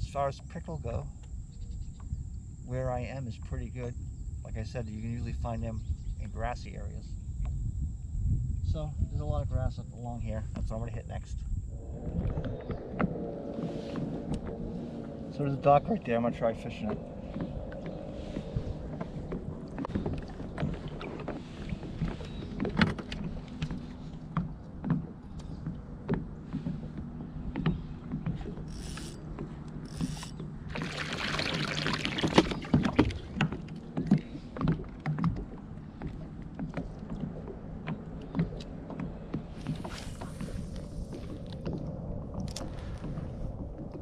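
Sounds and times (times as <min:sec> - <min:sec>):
water rushing: 0:11.7 - 0:23.9, 0:28.5 - 0:34.6
paddle knocking against kayak hull: 0:32.0 - 0:41.8.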